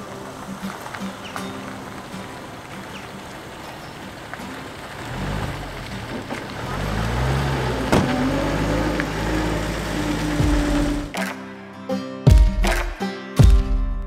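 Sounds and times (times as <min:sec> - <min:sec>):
music: 0:00.0 - 0:05.0, 0:09.9 - 0:14.0
car engine running: 0:02.0 - 0:11.1.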